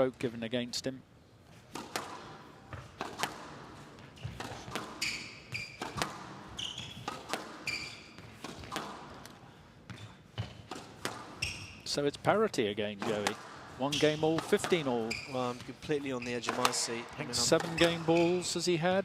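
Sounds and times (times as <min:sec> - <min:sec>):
shoes squeaking on court floor: 0:01.5 - 0:11.9, 0:13.0 - 0:18.6
racket striking ball: 0:01.7 - 0:11.5, 0:13.0 - 0:15.2, 0:16.4 - 0:18.4
ball hitting walls: 0:01.7 - 0:11.6, 0:13.0 - 0:18.4.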